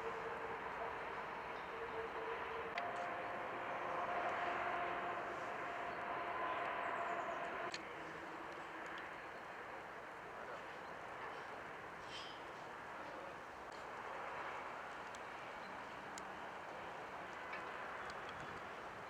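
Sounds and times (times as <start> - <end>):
rushing noise: 0.0 - 8.4
cable car mechanical hum: 0.0 - 19.0.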